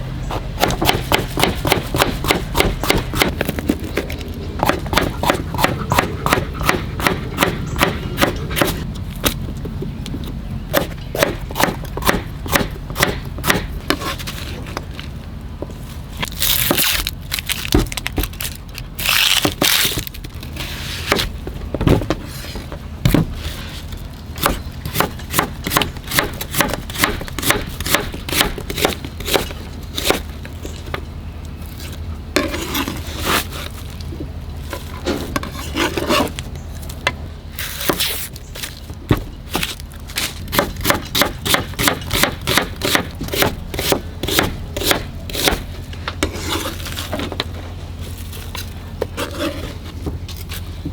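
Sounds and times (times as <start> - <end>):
knife chopping on cutting board: 0.3 - 3.4, 4.6 - 9.4, 10.7 - 14.1, 24.4 - 30.2, 40.5 - 45.6
knife scraping cutting board: 13.9 - 14.8, 32.4 - 33.8, 34.7 - 36.4, 46.2 - 47.4, 49.1 - 50.0.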